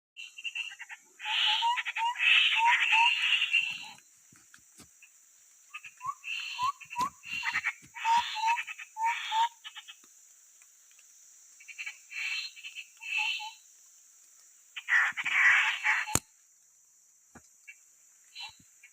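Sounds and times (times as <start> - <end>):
birds chattering and whistling: 0.2 - 4.1, 5.0 - 10.1, 11.6 - 13.7, 14.8 - 16.3, 17.6 - 18.9.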